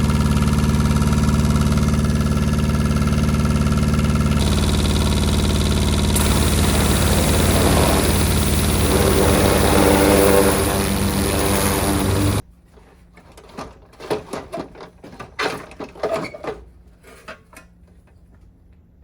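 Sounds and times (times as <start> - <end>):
diesel engine running: 0.0 - 12.4.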